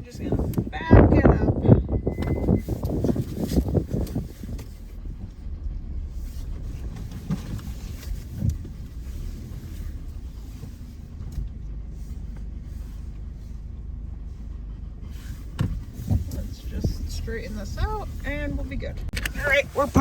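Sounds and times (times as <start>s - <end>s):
car engine rumbling: 0.0s - 20.0s.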